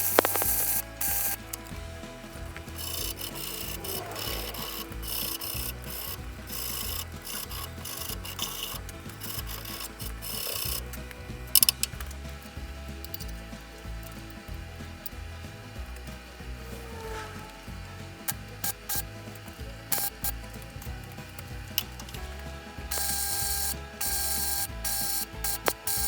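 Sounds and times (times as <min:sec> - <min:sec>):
loud clatter: 0:00.0 - 0:26.0
hand tool rasping on steel: 0:16.5 - 0:20.8.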